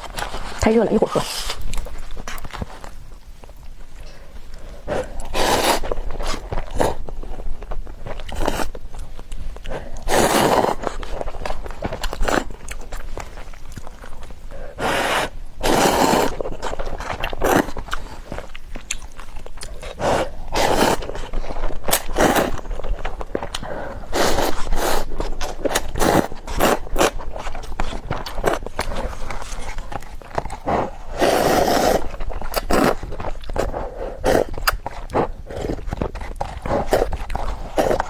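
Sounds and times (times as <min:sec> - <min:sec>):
chewing and mouth clicks: 0:01.5 - 0:14.6, 0:15.6 - 0:38.0
loud slurping of noodles: 0:05.0 - 0:07.0, 0:10.0 - 0:11.0, 0:14.8 - 0:16.4, 0:20.0 - 0:21.1, 0:24.1 - 0:25.1, 0:30.6 - 0:34.5.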